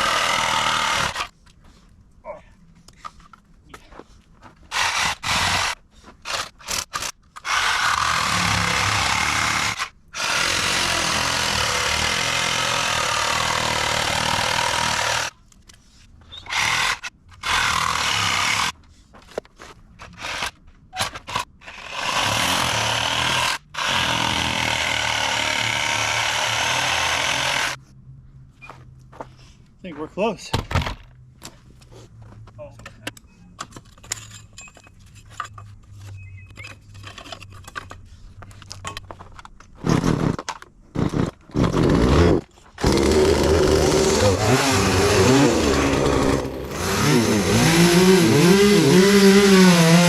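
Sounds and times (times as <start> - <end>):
chainsaw cutting wood: 0.0 - 1.3, 4.7 - 15.3, 16.5 - 18.8, 21.6 - 27.8, 39.9 - 50.0.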